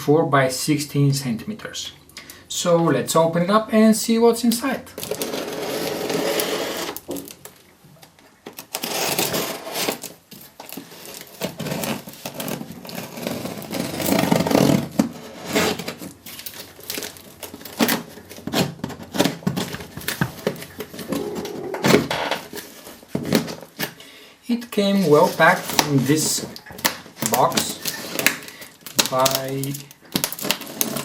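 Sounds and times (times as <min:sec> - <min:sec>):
cardboard box rasping and scraping: 0:05.2 - 0:07.0.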